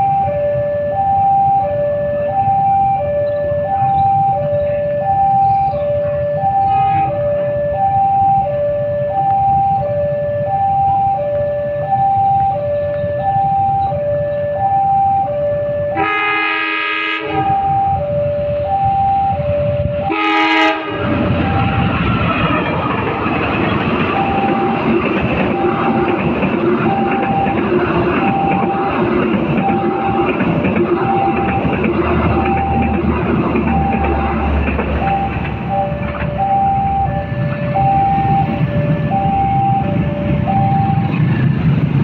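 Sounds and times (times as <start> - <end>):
level crossing two-note alarm: 0.0 - 22.1, 24.0 - 41.3
road vehicles passing: 0.0 - 42.0
train horn blast: 5.7 - 7.3, 15.9 - 17.9, 20.0 - 22.0, 27.0 - 32.9, 33.9 - 34.8
train wheels clattering on rails: 20.7 - 42.0.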